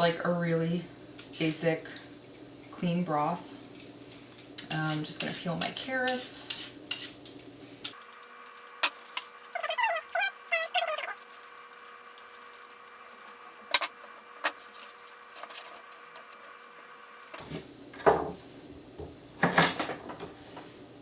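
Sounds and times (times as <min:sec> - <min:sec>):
peeler scraping carrots: 0:04.6 - 0:16.6.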